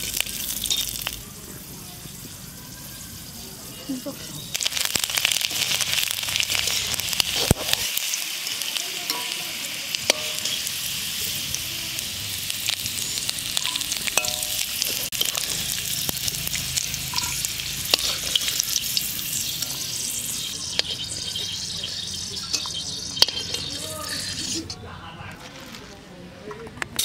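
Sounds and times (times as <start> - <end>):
garlic sizzling in hot oil: 0.0 - 24.8
metal spatula scraping pan: 16.9 - 24.8.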